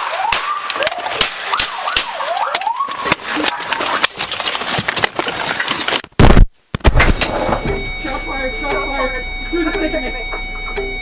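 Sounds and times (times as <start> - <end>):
police siren wailing: 0.0 - 4.0.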